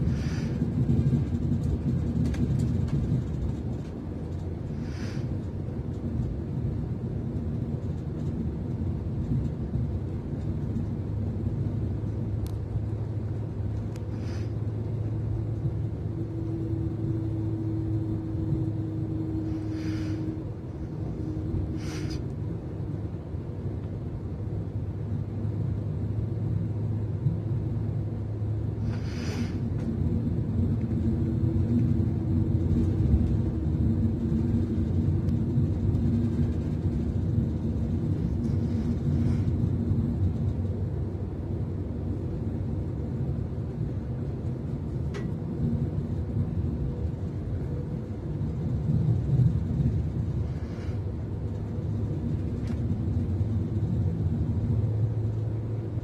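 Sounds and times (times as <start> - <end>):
faint steady whine: 0.0 - 56.0
train low rumble: 0.0 - 56.0
short hissing noises: 21.8 - 22.2, 28.8 - 29.6.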